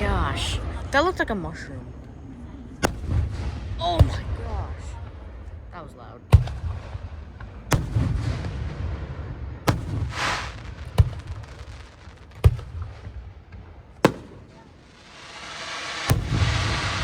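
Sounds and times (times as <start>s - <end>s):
fireworks shells booming: 2.8s - 5.2s, 6.3s - 17.0s
fireworks hissing crackle: 9.7s - 13.3s, 14.0s - 17.0s.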